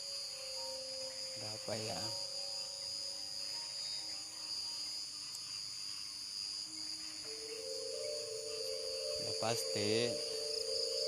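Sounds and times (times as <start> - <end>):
crickets chirping: 0.0 - 11.0
faint low held tones: 7.2 - 11.0.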